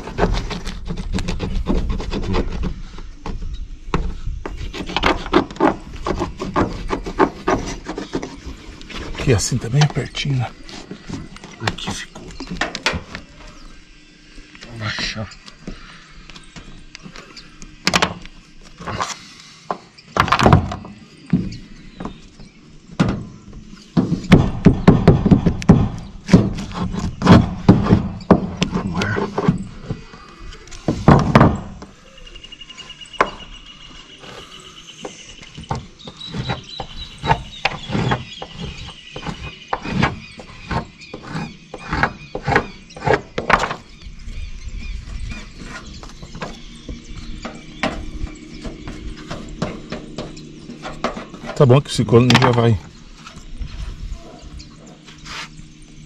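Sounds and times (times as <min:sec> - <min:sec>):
knocking and clatter of building work: 0:00.0 - 0:10.2, 0:19.7 - 0:22.3, 0:23.0 - 0:30.2, 0:30.8 - 0:31.9, 0:35.0 - 0:43.9, 0:45.3 - 0:52.9.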